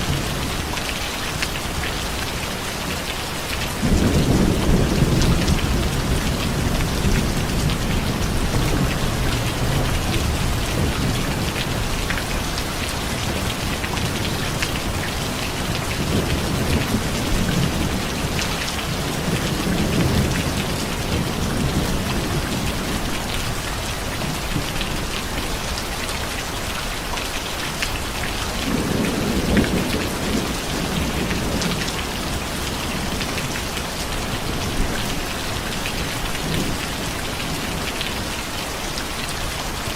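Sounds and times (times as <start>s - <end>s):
heavy rain falling: 0.0s - 39.9s
thunder rumbling: 3.8s - 23.0s, 28.6s - 38.2s.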